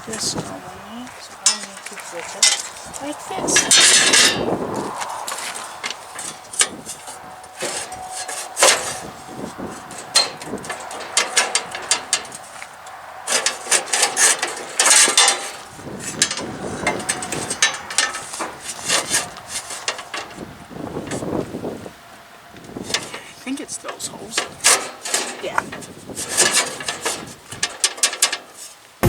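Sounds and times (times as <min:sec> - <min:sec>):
metal parts clinking and knocking: 0:05.8 - 0:20.4, 0:24.3 - 0:28.6.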